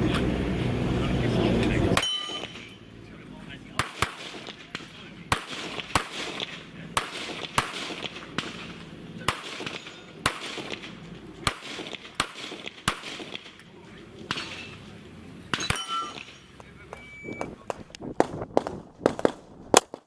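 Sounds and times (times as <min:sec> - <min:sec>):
faint background chatter: 0:00.0 - 0:02.0, 0:02.6 - 0:10.2, 0:13.6 - 0:15.6
handgun shots: 0:03.8 - 0:13.6.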